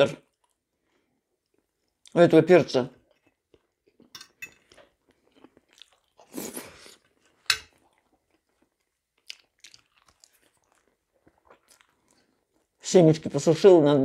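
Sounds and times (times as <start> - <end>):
person chewing: 3.1 - 12.8.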